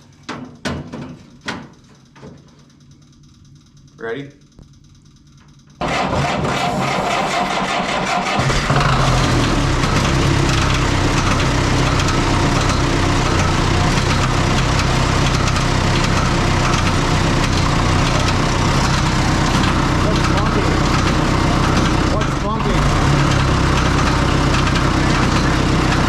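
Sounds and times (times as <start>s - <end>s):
diesel tractor engine running: 5.8s - 26.0s
tractor engine starter cranking: 5.8s - 26.0s.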